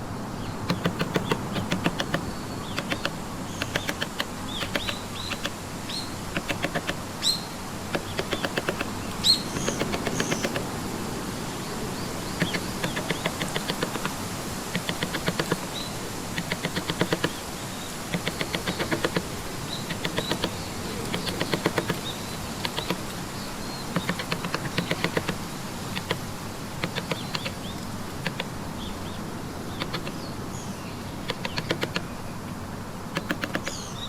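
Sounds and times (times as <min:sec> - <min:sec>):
steady background hiss: 0:00.0 - 0:34.0
mallet tapping carving chisel: 0:00.6 - 0:05.6, 0:06.2 - 0:10.7, 0:12.4 - 0:17.4, 0:18.1 - 0:23.2, 0:23.9 - 0:28.5, 0:29.7 - 0:30.2, 0:31.2 - 0:32.1, 0:33.2 - 0:33.9.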